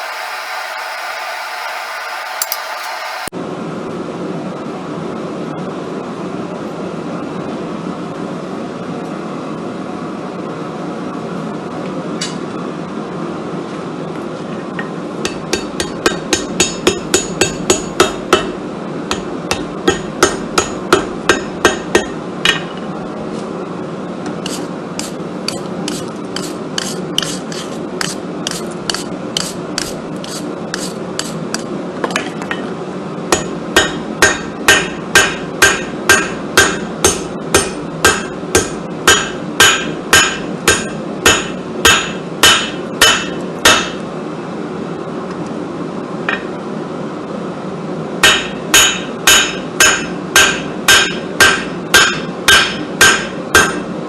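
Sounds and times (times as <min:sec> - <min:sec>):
forge hum: 0:00.0 - 0:03.3
hammer striking steel on anvil: 0:02.2 - 0:03.3, 0:15.2 - 0:22.8, 0:33.3 - 0:44.0, 0:46.3 - 0:46.5, 0:48.2 - 0:53.9.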